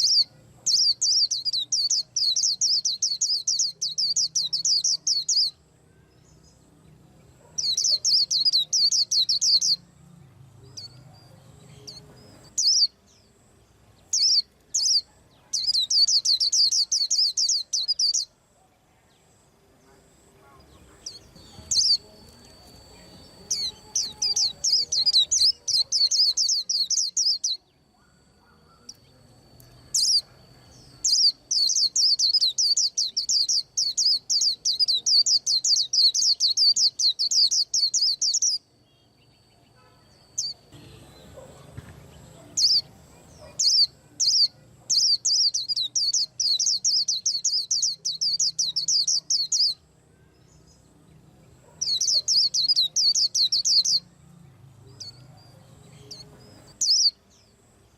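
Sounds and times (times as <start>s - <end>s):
bird singing rapid trills: 0.0s - 18.5s, 19.1s - 57.9s
single bird chirps: 7.4s - 9.8s, 10.8s - 13.4s, 14.1s - 18.4s, 21.0s - 49.8s.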